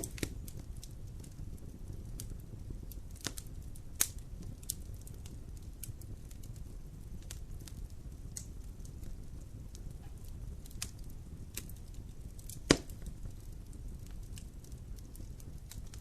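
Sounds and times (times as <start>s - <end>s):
low fire rumble: 0.0s - 16.0s
wood fire crackling: 0.0s - 16.0s.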